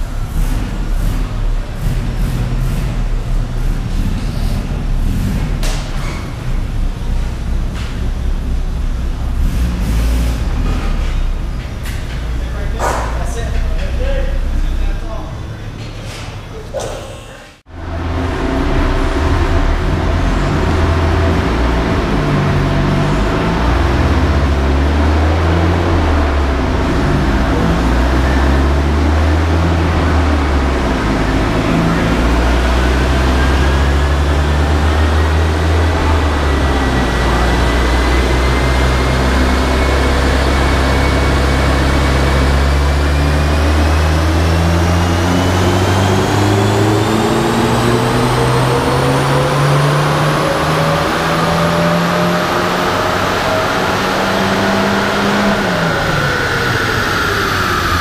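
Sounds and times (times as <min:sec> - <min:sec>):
car engine climbing in pitch: 0:00.0 - 0:17.0, 0:17.6 - 0:58.0
steady low drone: 0:17.6 - 0:58.0.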